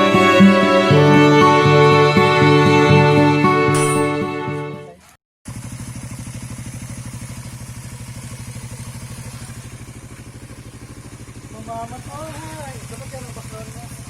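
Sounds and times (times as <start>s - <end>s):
background music: 0.0s - 5.0s
motorcycle engine idling: 5.0s - 14.0s.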